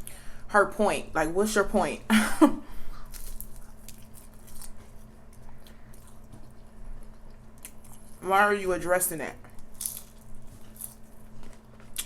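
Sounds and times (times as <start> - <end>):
person chewing food: 2.9 - 8.2, 9.5 - 12.0.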